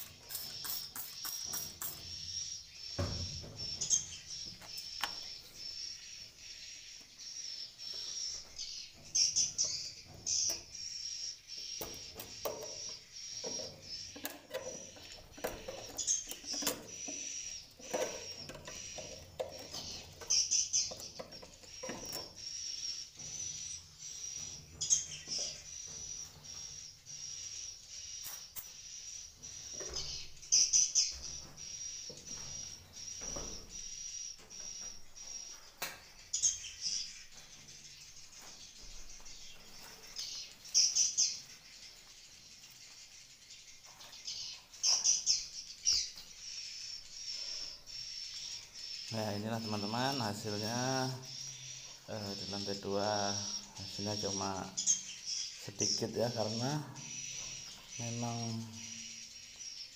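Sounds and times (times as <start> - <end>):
swiftlets twittering: 0.0 - 2.6.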